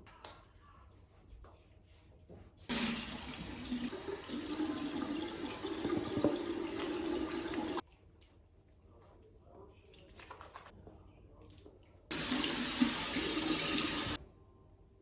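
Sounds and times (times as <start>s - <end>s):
tap water running into sink: 2.7s - 7.8s, 12.1s - 14.2s.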